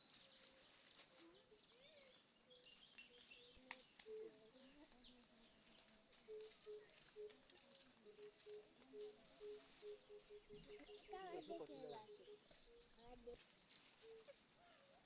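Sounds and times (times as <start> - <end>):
faint bird chirps: 0.0 - 13.4
dove cooing: 6.2 - 13.4.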